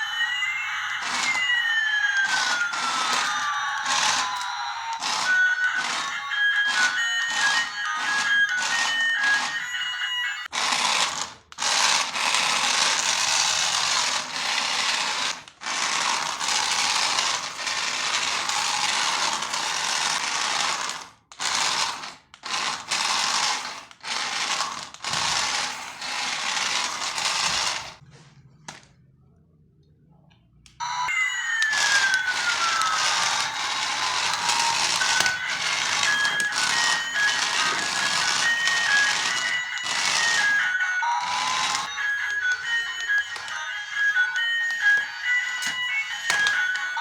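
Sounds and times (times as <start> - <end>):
electronic toy beeps: 0.0 - 10.5, 30.8 - 47.0
toy motor and gears whirring: 0.0 - 28.0, 31.1 - 47.0.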